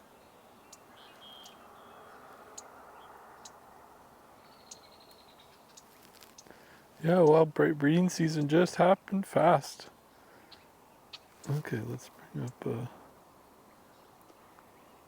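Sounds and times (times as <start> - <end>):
soft sharp ticks: 4.7 - 6.6.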